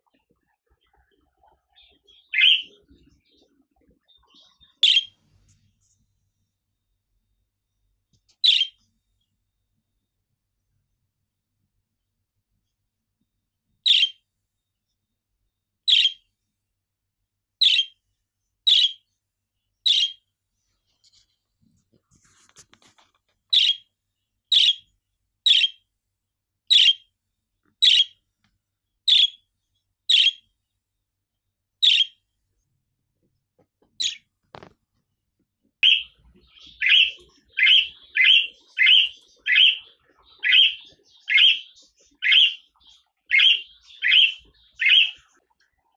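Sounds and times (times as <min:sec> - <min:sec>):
budgerigar chirping: 0:01.8 - 0:02.8, 0:04.4 - 0:05.2, 0:08.4 - 0:08.8, 0:13.9 - 0:14.2, 0:15.9 - 0:16.2, 0:17.6 - 0:17.9, 0:18.7 - 0:19.0, 0:19.9 - 0:20.2, 0:23.5 - 0:23.8, 0:24.5 - 0:24.8, 0:25.4 - 0:25.8, 0:26.7 - 0:27.1, 0:27.8 - 0:28.2, 0:29.1 - 0:29.4, 0:30.1 - 0:30.4, 0:31.8 - 0:32.2, 0:34.0 - 0:34.2, 0:35.8 - 0:45.2.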